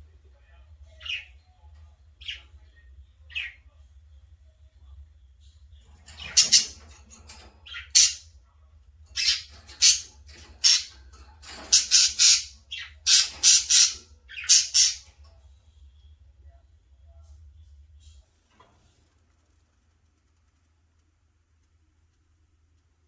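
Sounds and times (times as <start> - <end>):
baby budgerigars calling: 6.1 - 7.0, 7.7 - 8.3, 9.1 - 15.2.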